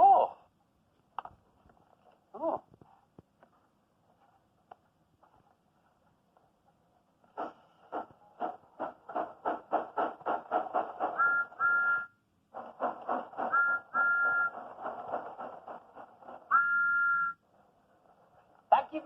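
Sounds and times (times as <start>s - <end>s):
steam locomotive chuffing: 7.3s - 12.0s, 12.6s - 17.1s
two-note train whistle: 11.2s - 12.2s, 13.5s - 14.6s, 16.5s - 17.4s.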